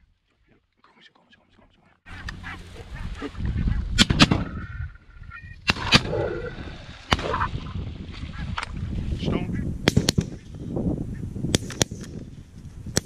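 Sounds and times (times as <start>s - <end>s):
geese honking: 2.1s - 3.8s
shotgun shots: 4.0s - 4.5s, 5.7s - 6.2s, 7.1s - 7.5s, 9.8s - 10.4s, 11.5s - 12.1s.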